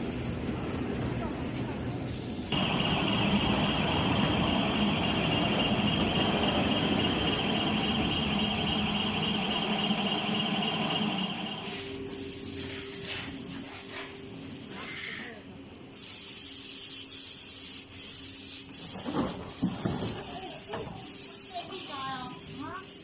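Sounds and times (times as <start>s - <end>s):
low hum and hissing: 0.0s - 23.0s
high whine: 2.5s - 11.9s.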